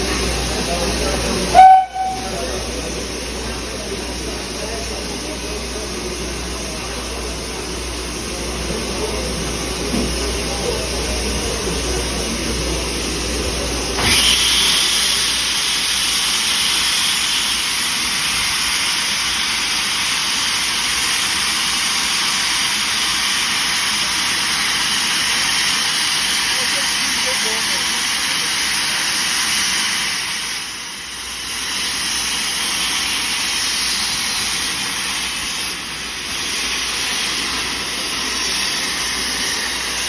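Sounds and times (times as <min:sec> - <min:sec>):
locomotive engine rumbling: 0:00.0 - 0:18.9
loud steady hiss: 0:00.0 - 0:40.0.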